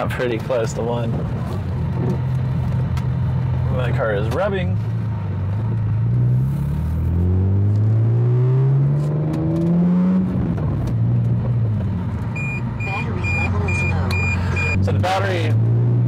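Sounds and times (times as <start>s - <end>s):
car engine accelerating: 1.3s - 16.0s
repeating electronic beep: 12.4s - 14.8s.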